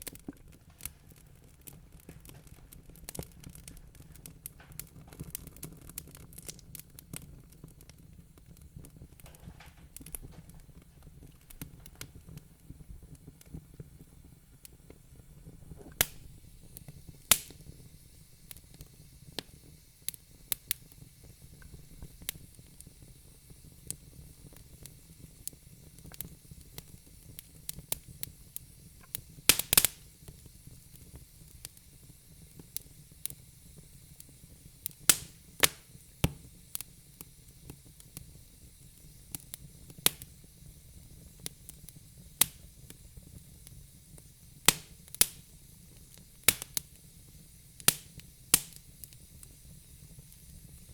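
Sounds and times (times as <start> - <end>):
fire crackling and popping: 0.0 - 50.9
low hiss of flames: 0.0 - 50.9.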